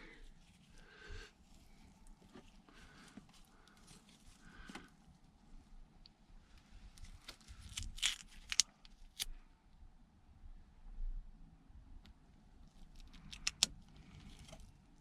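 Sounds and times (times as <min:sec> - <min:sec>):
soft rustling: 0:00.0 - 0:05.8.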